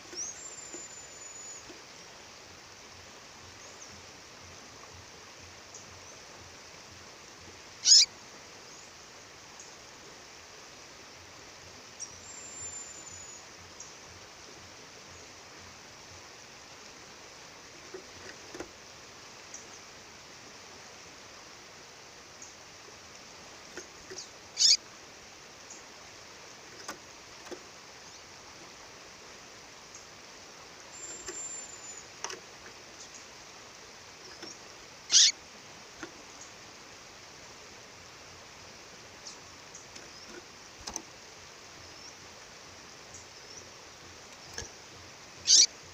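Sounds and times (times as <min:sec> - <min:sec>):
songbird calling: 0:00.0 - 0:02.2, 0:07.7 - 0:09.0, 0:11.8 - 0:14.0, 0:23.7 - 0:24.9, 0:30.8 - 0:35.5, 0:41.7 - 0:42.3, 0:43.0 - 0:44.8, 0:45.4 - 0:45.9
faint thin whistles and chirps: 0:00.1 - 0:01.8, 0:07.8 - 0:08.1, 0:12.0 - 0:13.9, 0:24.2 - 0:24.8, 0:30.9 - 0:32.1, 0:34.3 - 0:35.4, 0:45.4 - 0:45.7.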